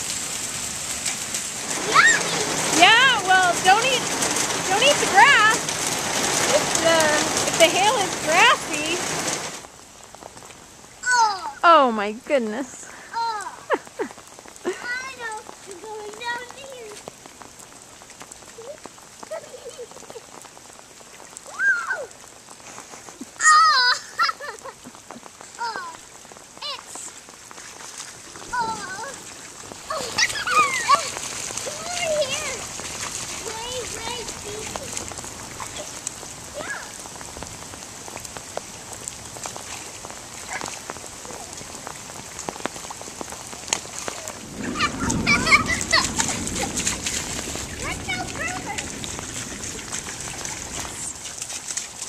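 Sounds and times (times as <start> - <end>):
rain pattering on ground: 0.0 - 52.0
child squealing: 1.9 - 2.4, 21.5 - 22.1, 29.9 - 31.1.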